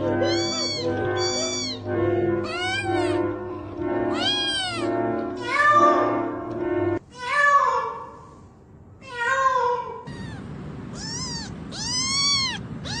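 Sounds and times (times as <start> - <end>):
cat meowing: 0.0 - 5.8, 10.1 - 13.0
background noise: 0.0 - 13.0.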